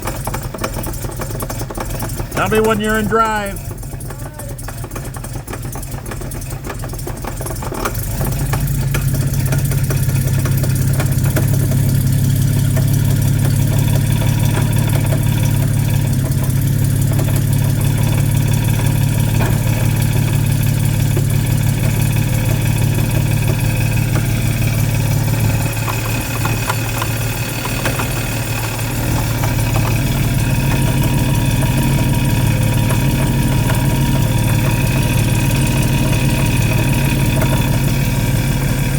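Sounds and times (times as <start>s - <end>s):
car engine humming: 2.3s - 3.7s, 11.4s - 38.9s
transmission noise: 2.4s - 3.6s.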